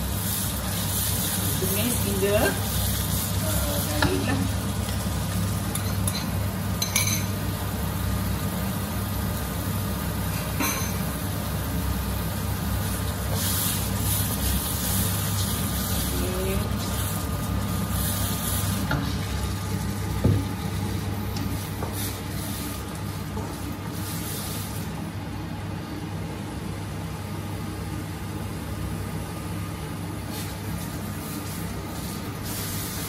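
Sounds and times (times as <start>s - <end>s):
paste sizzling in hot oil: 0.0s - 6.2s, 11.3s - 24.9s.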